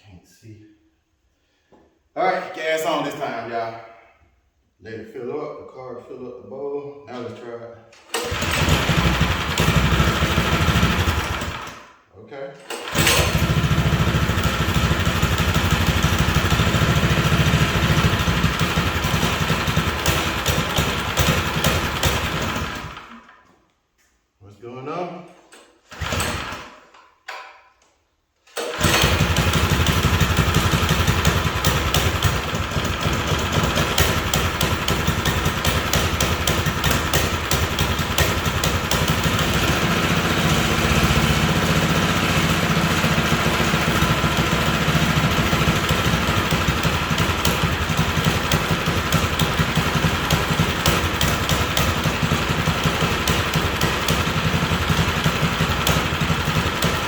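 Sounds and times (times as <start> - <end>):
small engine running: 8.2 - 11.9, 12.8 - 23.1, 28.7 - 57.0.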